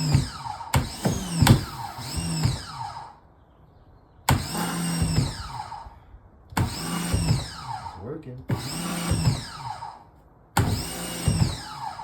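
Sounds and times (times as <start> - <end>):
pressure washer motor whining: 0.0 - 3.2, 6.6 - 10.0.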